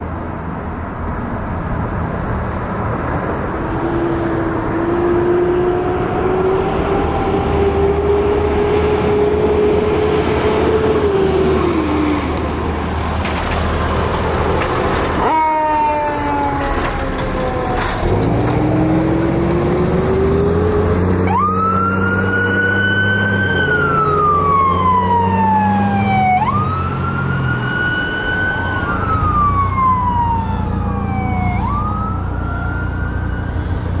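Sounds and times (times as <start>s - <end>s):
heavy engine rumble: 6.8s - 21.7s
electronic siren wail: 15.2s - 19.0s, 19.7s - 34.0s
siren winding upward: 20.0s - 33.8s.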